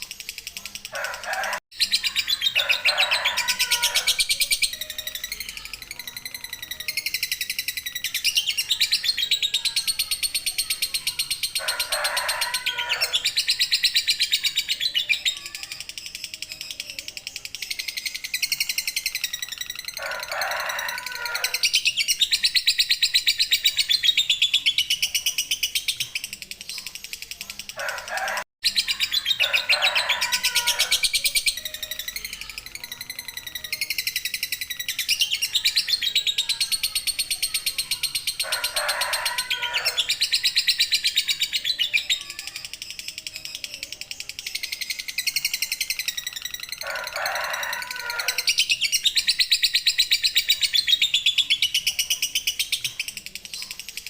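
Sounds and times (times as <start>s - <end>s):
bird chattering trill: 0.0s - 54.0s.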